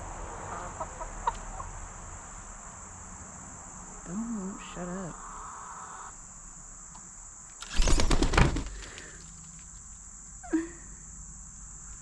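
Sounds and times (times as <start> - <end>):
crickets chirping: 0.0 - 12.0
crackling rustle: 7.5 - 10.1.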